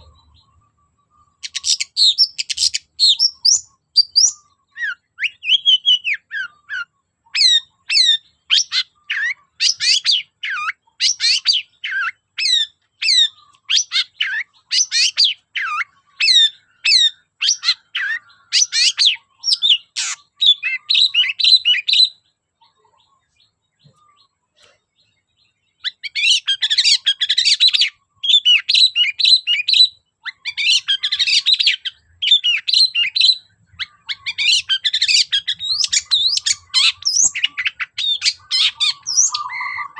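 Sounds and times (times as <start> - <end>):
shrike calling: 0.0 - 22.8, 25.8 - 39.9
fast chattering bird phrases: 0.0 - 23.3, 25.8 - 39.9.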